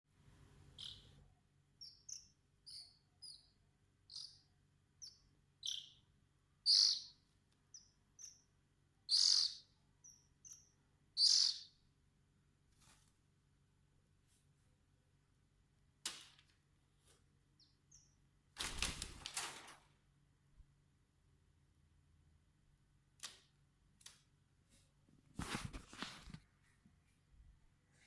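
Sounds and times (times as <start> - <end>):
bird chirping: 0.6 - 11.9, 17.6 - 18.2.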